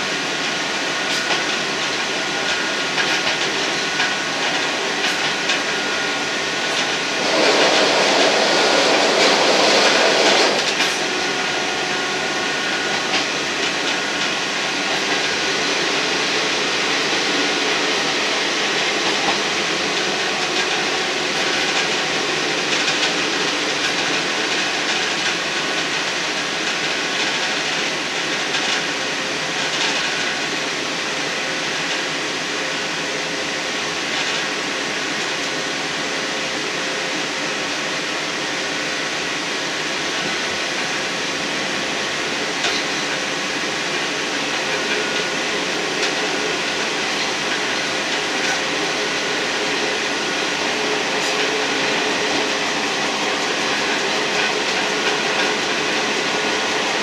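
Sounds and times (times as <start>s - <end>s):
train rumbling along track: 0.0s - 57.0s
light clicks from rails: 0.4s - 5.7s, 42.6s - 43.2s.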